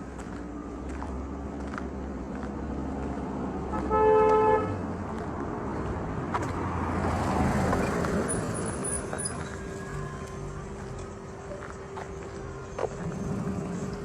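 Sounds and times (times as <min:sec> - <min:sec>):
road traffic noise: 0:00.0 - 0:14.0
vehicle passing: 0:00.0 - 0:14.0
vehicle horn toot: 0:03.7 - 0:04.8.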